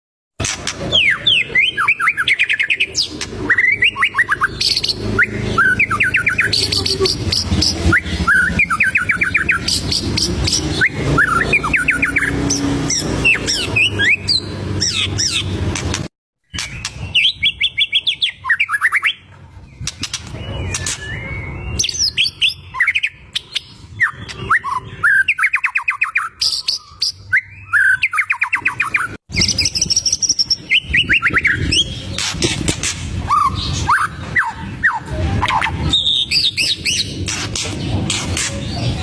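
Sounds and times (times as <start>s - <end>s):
songbird singing rapid notes: 0.8s - 15.9s
bird whistling phrases: 0.9s - 15.4s, 19.9s - 32.2s.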